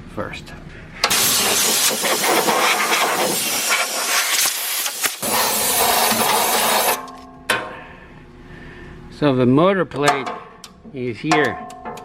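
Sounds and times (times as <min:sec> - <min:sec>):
compressed air hissing: 0:01.0 - 0:07.0.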